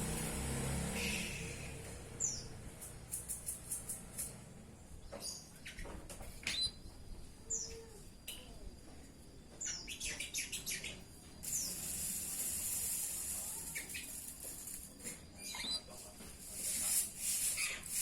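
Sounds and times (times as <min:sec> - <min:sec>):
steady high hiss: 0:09.7 - 0:18.0
canary chirping: 0:13.4 - 0:14.4, 0:15.4 - 0:16.0.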